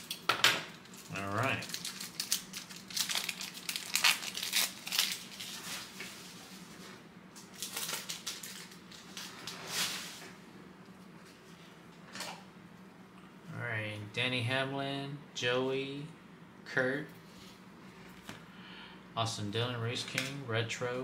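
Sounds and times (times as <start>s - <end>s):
card pack wrapper crinkling: 0.8s - 6.0s, 7.4s - 9.6s.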